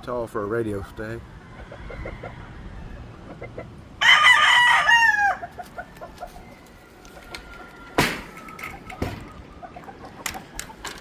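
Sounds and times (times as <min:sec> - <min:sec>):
faint chickens clucking: 0:00.6 - 0:04.0, 0:04.8 - 0:11.0
rooster crowing: 0:04.0 - 0:05.6, 0:06.3 - 0:08.6.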